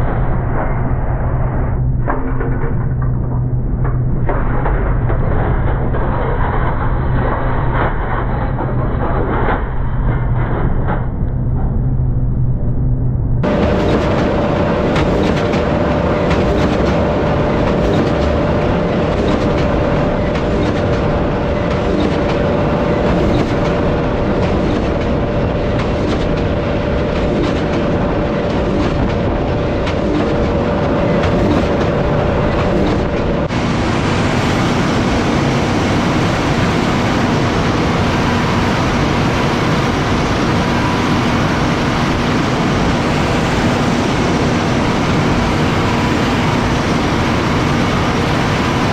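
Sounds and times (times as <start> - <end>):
low machine hum: 0.0 - 48.9
tractor with haymaking machinery: 13.4 - 48.9.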